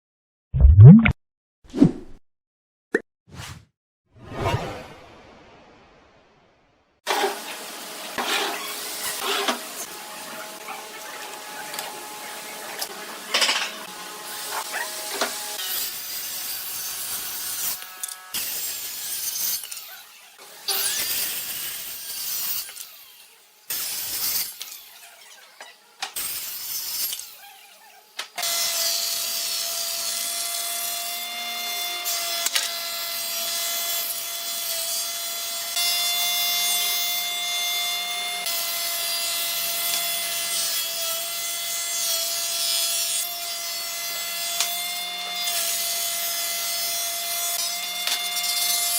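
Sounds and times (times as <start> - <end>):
tools cutting and rubbing wood: 7.1 - 35.7, 38.4 - 48.9.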